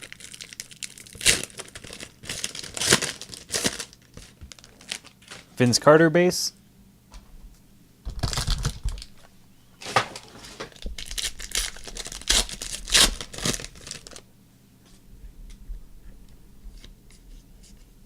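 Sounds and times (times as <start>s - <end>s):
card pack wrapper tearing and crinkling: 0.0s - 5.5s, 8.1s - 9.2s, 10.7s - 14.2s.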